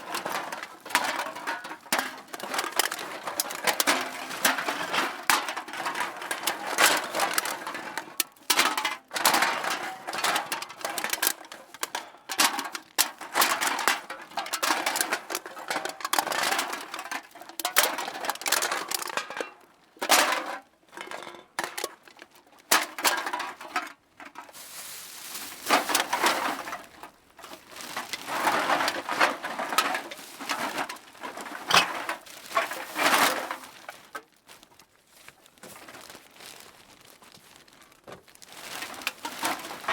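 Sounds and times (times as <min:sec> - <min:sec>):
cans clattering into a bag: 0:00.0 - 0:34.6, 0:38.0 - 0:39.9.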